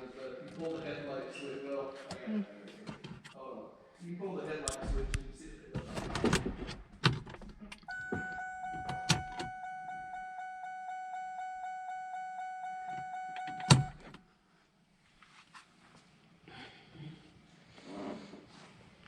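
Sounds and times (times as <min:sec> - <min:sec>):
loud thump: 0:04.8 - 0:05.4
car warning chime pulsing: 0:07.9 - 0:14.2.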